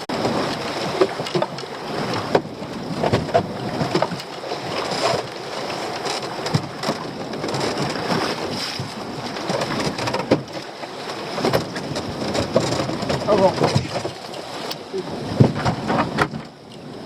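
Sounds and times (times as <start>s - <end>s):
sea water sloshing against boat: 0.0s - 17.0s
wind on microphone: 0.0s - 17.0s
knocks and clatter of lobster pot: 6.5s - 10.6s, 11.4s - 14.2s, 15.4s - 16.5s.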